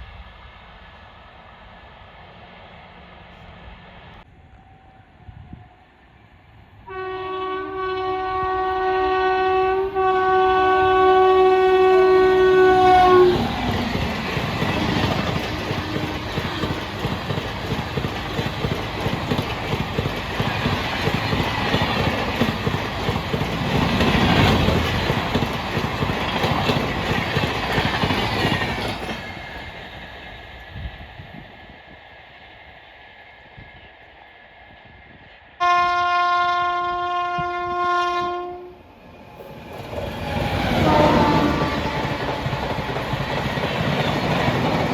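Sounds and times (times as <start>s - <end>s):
train horn blast: 6.8s - 13.8s, 14.8s - 16.9s, 35.6s - 38.8s, 40.6s - 42.6s
train wheels rattling over rails: 11.6s - 31.6s, 39.0s - 44.9s.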